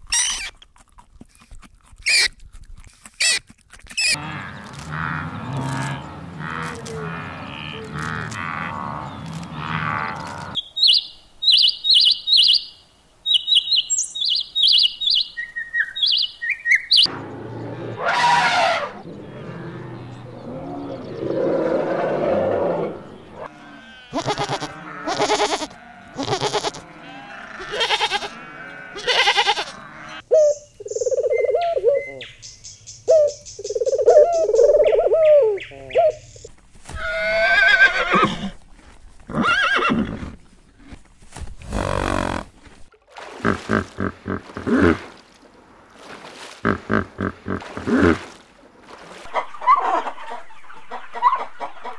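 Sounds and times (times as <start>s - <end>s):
animal calls: 16.9s - 32.3s
pigeons cooing: 29.9s - 32.3s, 33.1s - 36.5s.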